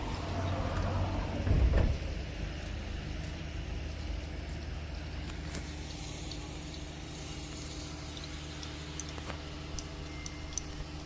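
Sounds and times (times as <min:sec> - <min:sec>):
engine humming: 0:00.0 - 0:11.0
faint ticks: 0:07.5 - 0:10.8.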